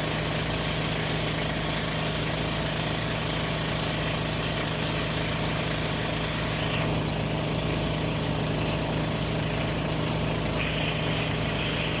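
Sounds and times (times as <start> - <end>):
small boat engine humming: 6.1 - 12.0.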